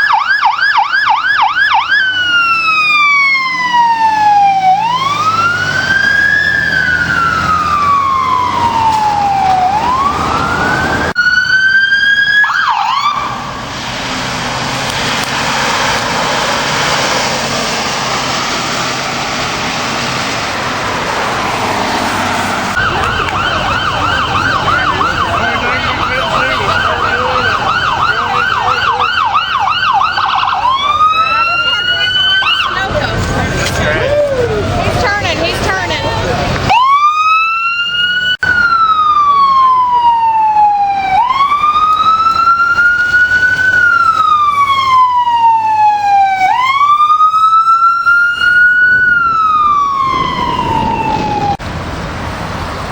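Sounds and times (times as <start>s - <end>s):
electronic siren wailing: 0.0s - 13.7s, 21.2s - 32.9s, 36.7s - 51.6s
fast yelp siren: 0.0s - 13.7s, 22.5s - 32.9s, 36.7s - 51.6s
traffic and engine noise: 0.0s - 52.9s.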